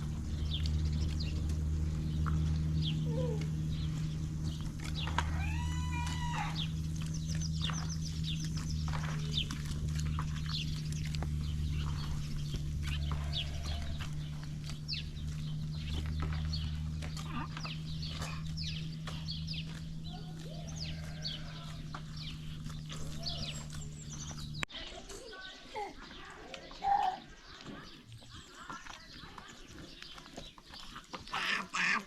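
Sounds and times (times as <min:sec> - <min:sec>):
steady low hum: 0:00.0 - 0:24.7
chickens clucking: 0:00.0 - 0:32.0
small birds chirping: 0:00.0 - 0:32.0.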